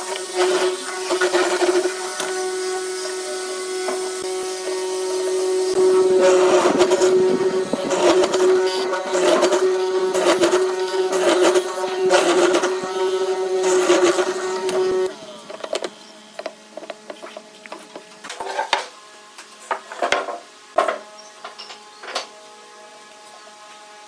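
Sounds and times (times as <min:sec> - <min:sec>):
power tool motor winding down: 0:00.0 - 0:17.2
wood knocking: 0:15.6 - 0:18.1.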